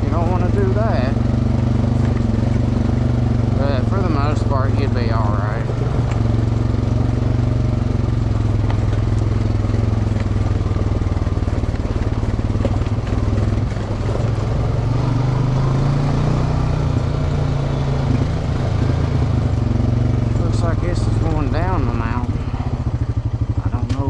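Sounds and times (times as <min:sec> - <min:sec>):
off-road vehicle engine running: 0:00.0 - 0:24.0.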